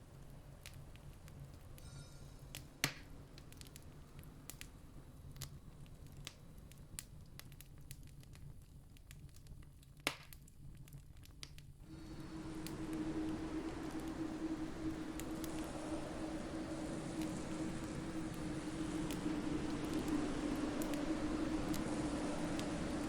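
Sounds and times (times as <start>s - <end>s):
fire snapping: 2.5s - 23.0s
campfire crackling: 10.8s - 23.0s
low steady rumble: 11.8s - 23.0s.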